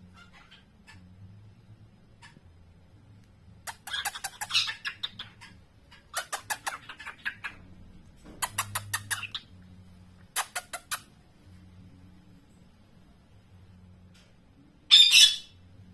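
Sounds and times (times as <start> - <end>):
cockatiel chirping: 0.1 - 1.0, 3.7 - 7.6, 14.9 - 15.6.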